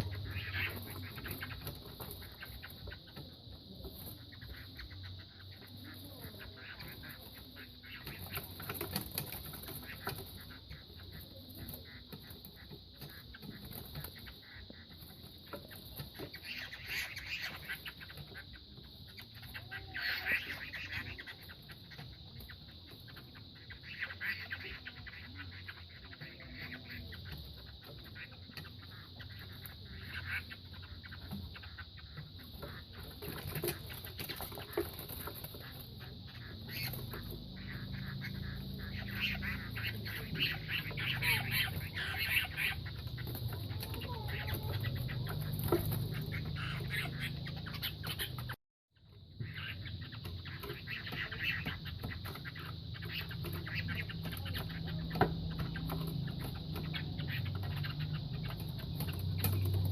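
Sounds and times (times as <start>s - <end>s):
roosters scuffling and pecking: 8.1s - 18.3s, 32.2s - 36.0s.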